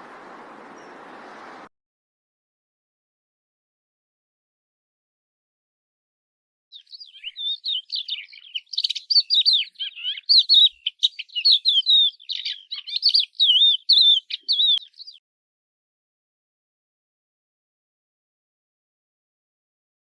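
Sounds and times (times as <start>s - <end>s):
songbird warbling: 0.0s - 1.6s, 6.7s - 15.2s.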